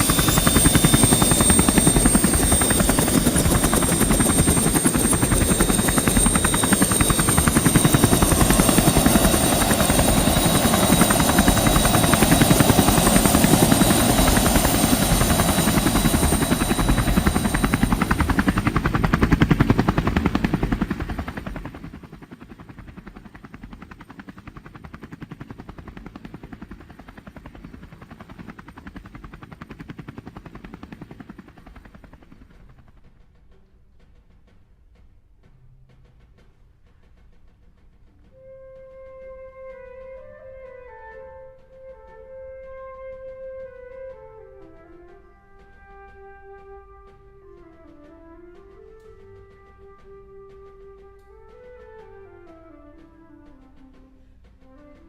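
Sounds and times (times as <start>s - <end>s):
helicopter chopping and whining: 0.0s - 33.6s.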